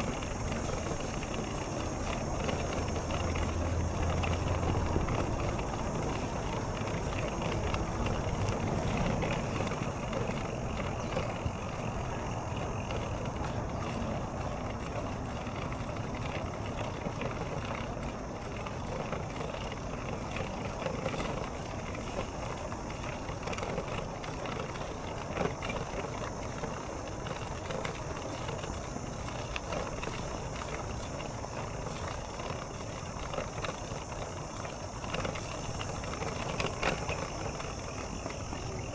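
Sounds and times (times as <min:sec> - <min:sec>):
bicycle rolling: 0:00.0 - 0:38.9
small rattles and clicks: 0:00.0 - 0:38.9.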